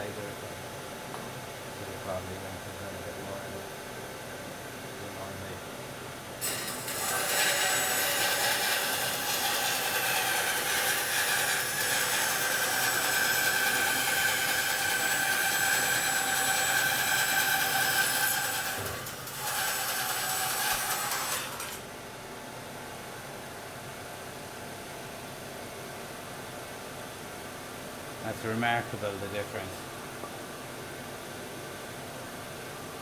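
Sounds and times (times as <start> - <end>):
bandsaw cutting wood: 6.4 - 21.8
bandsaw running hum: 6.4 - 21.8.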